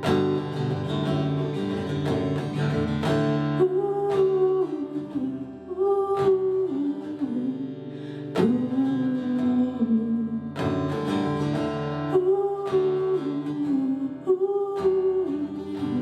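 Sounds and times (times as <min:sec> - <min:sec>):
acoustic guitar strummed chords: 0:00.0 - 0:16.0.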